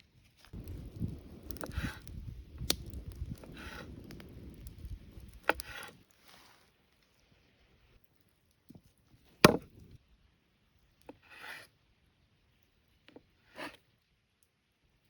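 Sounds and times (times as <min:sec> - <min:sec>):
knocks on wooden surface: 0:09.4 - 0:09.7.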